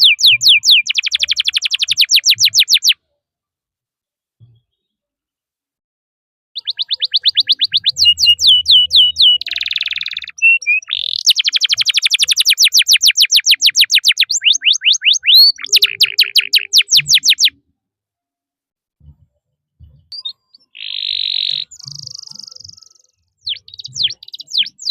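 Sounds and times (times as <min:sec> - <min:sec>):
canary singing: 0:00.0 - 0:03.0, 0:06.6 - 0:17.6, 0:20.1 - 0:24.9.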